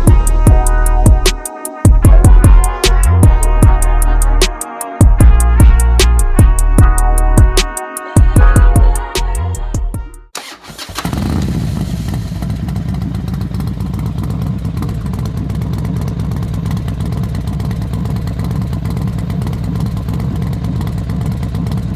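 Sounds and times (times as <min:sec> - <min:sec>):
background music: 0:00.0 - 0:10.4
motorcycle engine starting and running: 0:10.4 - 0:21.9.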